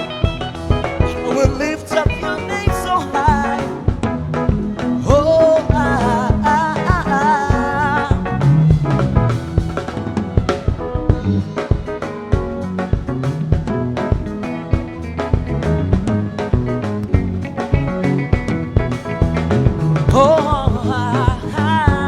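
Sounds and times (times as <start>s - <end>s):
person singing: 0.0s - 13.6s, 18.0s - 22.0s
live band playing: 0.0s - 22.0s.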